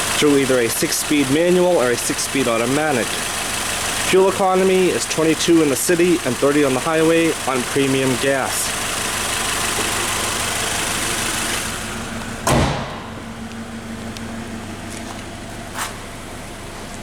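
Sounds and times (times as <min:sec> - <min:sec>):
car engine idling: 0:00.0 - 0:17.0
car hood slamming shut: 0:12.4 - 0:13.4.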